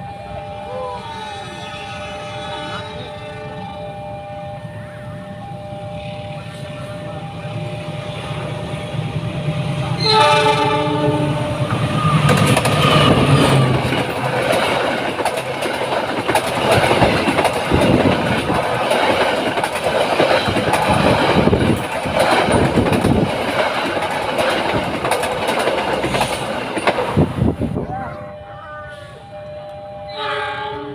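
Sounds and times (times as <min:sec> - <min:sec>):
train horn: 0:00.0 - 0:08.2, 0:09.9 - 0:13.9, 0:27.8 - 0:30.9
train wheels clattering over rails: 0:11.4 - 0:27.6.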